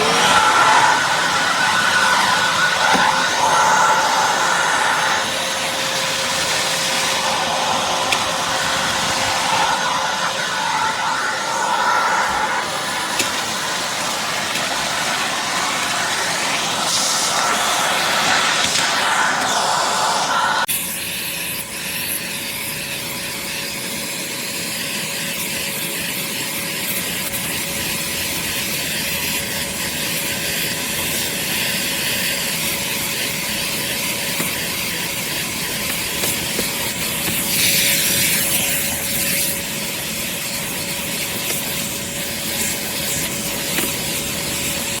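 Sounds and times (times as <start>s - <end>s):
shop vacuum running: 0.0s - 22.4s, 26.7s - 45.0s.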